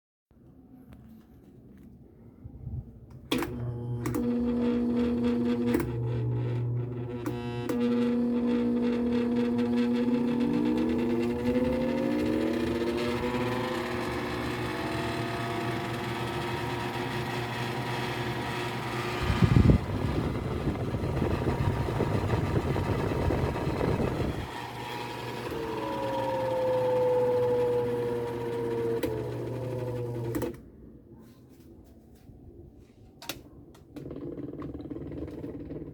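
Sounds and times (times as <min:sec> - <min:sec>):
electric fan motor humming: 0:03.3 - 0:30.6.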